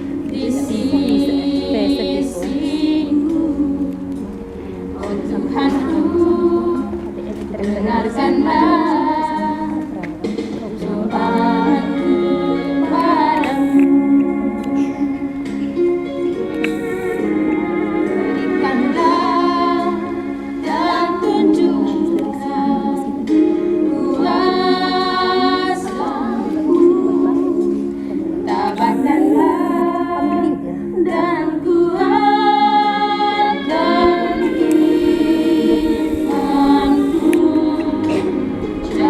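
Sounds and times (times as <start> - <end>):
choir singing a hymn: 0.0 - 39.0
steady low tone: 34.0 - 39.0.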